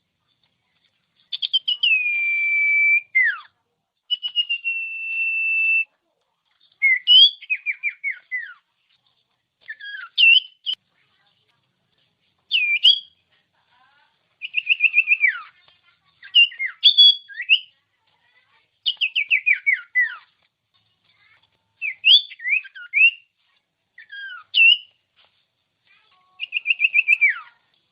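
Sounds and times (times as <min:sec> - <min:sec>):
bird singing whistled phrases: 0:01.3 - 0:03.5, 0:04.1 - 0:05.9, 0:06.8 - 0:08.6, 0:09.7 - 0:10.8, 0:12.5 - 0:13.2, 0:14.4 - 0:15.5, 0:16.3 - 0:17.7, 0:18.9 - 0:20.2, 0:21.8 - 0:23.3, 0:24.0 - 0:24.9, 0:26.4 - 0:27.5.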